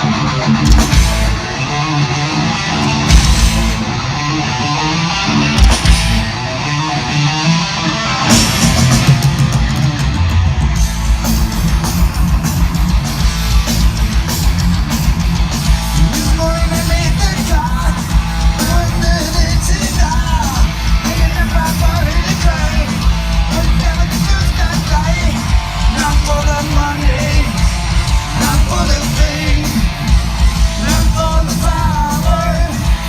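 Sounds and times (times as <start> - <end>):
drums and cymbals: 0.0 - 4.4, 5.1 - 33.0
bass guitar: 0.0 - 33.0
distorted electric guitar riffing: 0.0 - 33.0
person singing: 28.3 - 29.9, 30.8 - 33.0.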